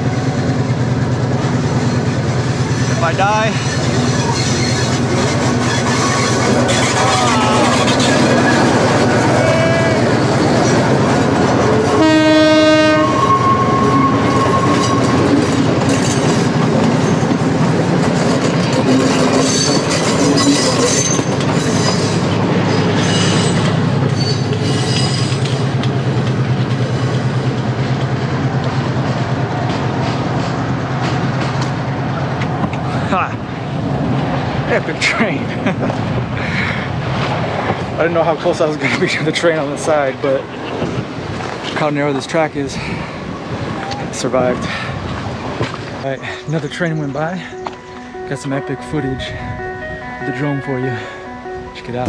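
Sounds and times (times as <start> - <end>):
wheels clacking over rail joints: 0.0 - 49.4
diesel locomotive engine: 0.0 - 52.0
train horn blast: 11.8 - 15.3.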